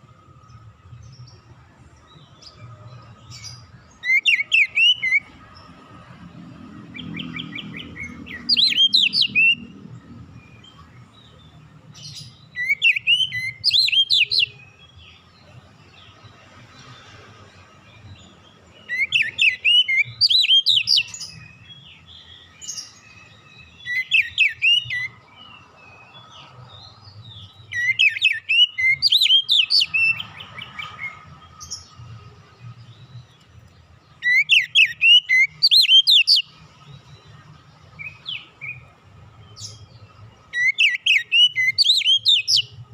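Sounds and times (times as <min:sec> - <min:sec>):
bird singing whistled phrases: 0:04.0 - 0:05.3, 0:07.0 - 0:09.7, 0:12.5 - 0:14.6, 0:18.9 - 0:21.6, 0:23.7 - 0:25.2, 0:27.7 - 0:30.3, 0:34.2 - 0:36.5, 0:40.6 - 0:42.8.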